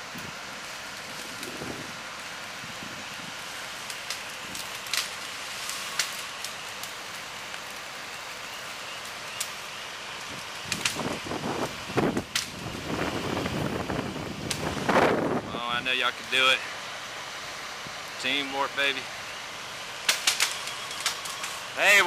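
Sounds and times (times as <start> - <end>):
wind rushing through trees: 0.0 - 6.7, 8.1 - 22.0
sharp ticks and crackles: 3.8 - 7.8, 9.0 - 11.2, 12.2 - 12.7, 20.0 - 21.6.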